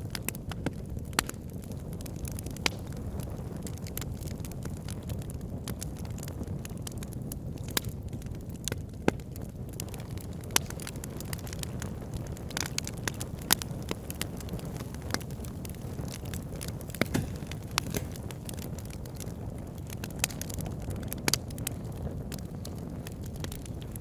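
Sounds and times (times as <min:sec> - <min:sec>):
wood fire burning: 0:00.0 - 0:24.0.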